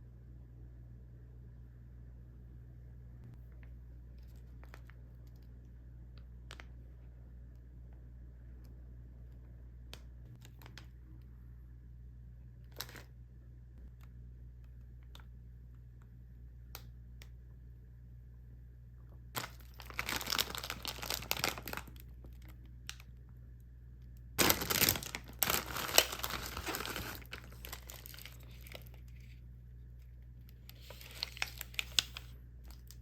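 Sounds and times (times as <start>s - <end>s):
plastic packaging crinkling: 19.4s - 23.0s, 24.4s - 29.4s, 30.5s - 33.0s.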